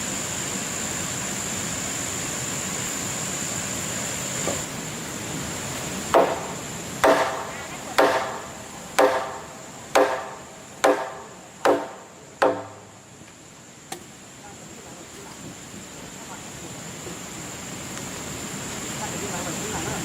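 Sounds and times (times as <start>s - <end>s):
tool striking timber: 6.1s - 13.0s.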